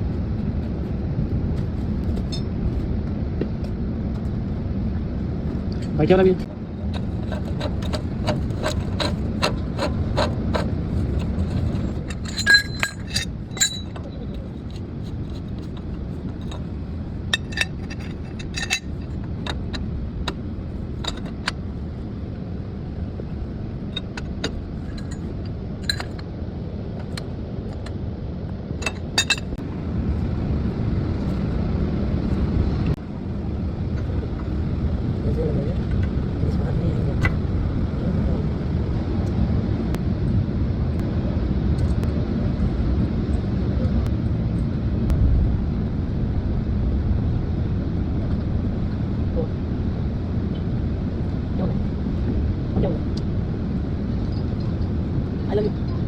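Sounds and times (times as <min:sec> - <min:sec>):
traffic noise: 0:00.0 - 0:56.0
metal tools clinking: 0:07.0 - 0:16.7, 0:17.3 - 0:19.6, 0:21.0 - 0:21.6, 0:24.0 - 0:26.2, 0:28.8 - 0:29.6.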